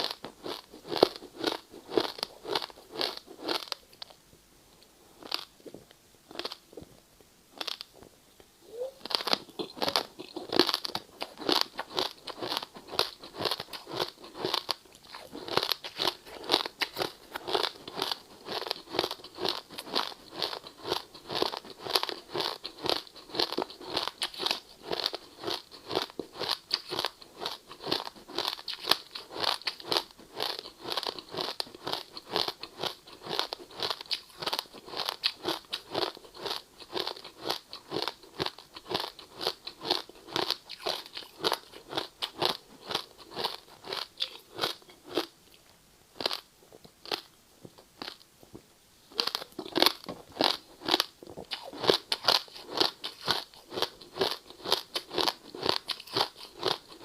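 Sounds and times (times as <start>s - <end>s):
ice crunching while chewed: 0.0s - 4.2s, 5.2s - 5.5s, 9.0s - 45.3s, 49.2s - 57.0s.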